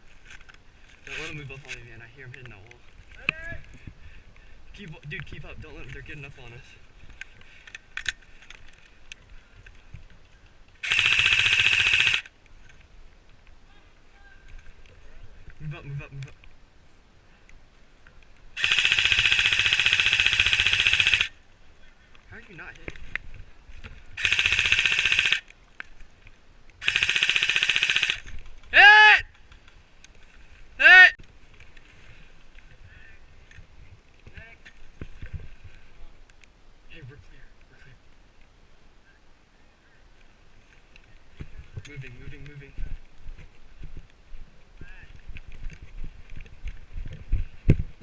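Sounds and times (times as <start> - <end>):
airsoft rifle full-auto burst: 10.8 - 12.3, 18.6 - 21.4, 24.2 - 25.5, 26.8 - 28.2
sharp clicks: 10.8 - 12.3, 18.6 - 21.4, 24.2 - 25.9, 26.7 - 28.7.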